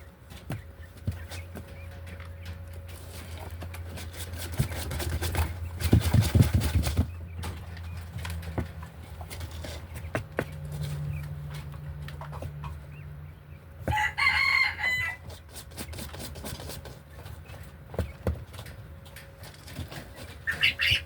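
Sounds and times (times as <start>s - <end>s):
chicken calling: 12.6s - 15.6s, 20.1s - 21.0s.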